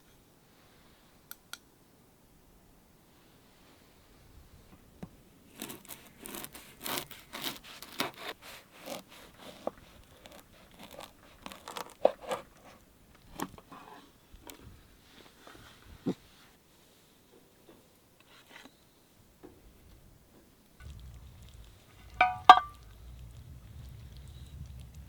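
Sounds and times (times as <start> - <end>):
crinkling and tearing handling: 5.5 - 13.6.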